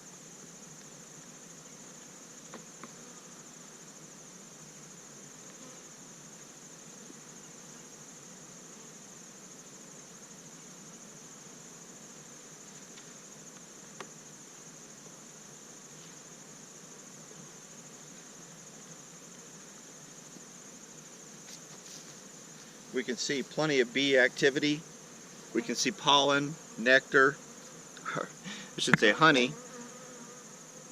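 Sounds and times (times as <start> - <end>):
high-pitched insect trill: 0.0 - 30.9
honey bees humming: 16.4 - 30.9.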